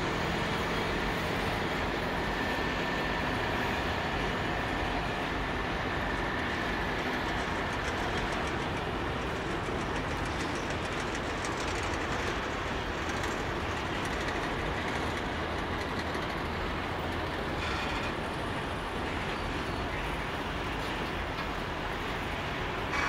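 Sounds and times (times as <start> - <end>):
steel wheels rumbling on rail: 0.0 - 23.0
wheels clicking over track: 6.1 - 23.0.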